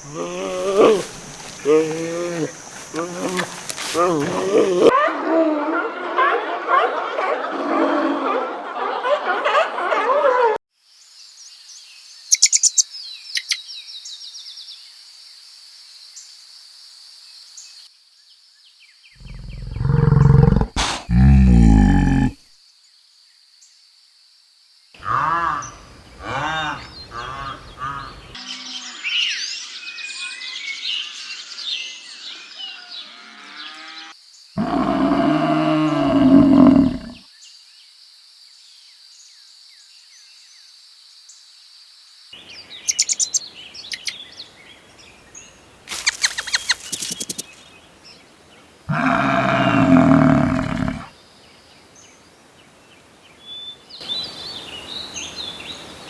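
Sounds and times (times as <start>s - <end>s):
loud deep drawn-out calls: 0.0s - 4.9s, 25.0s - 28.4s, 34.6s - 37.2s, 48.9s - 51.1s
repeated pitched animal calls: 0.0s - 4.9s, 25.0s - 28.4s, 34.6s - 37.2s, 48.9s - 51.1s
high bird twittering: 12.3s - 13.6s, 42.8s - 44.3s, 45.9s - 47.6s
scattered chirps: 45.9s - 47.6s.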